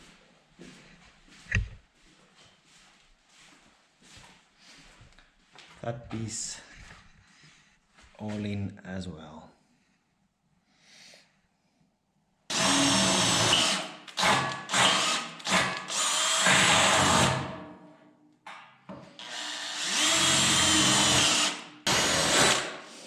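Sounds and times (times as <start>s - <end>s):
electric power drill whining: 12.5s - 17.5s, 19.2s - 22.8s.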